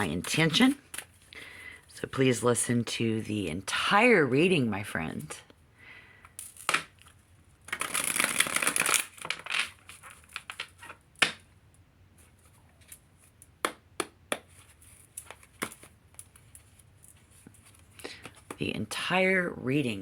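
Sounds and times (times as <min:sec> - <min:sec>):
cards being shuffled: 0:06.4 - 0:11.4, 0:12.2 - 0:18.6
cards clicking and tapping: 0:13.4 - 0:16.4, 0:18.1 - 0:18.6.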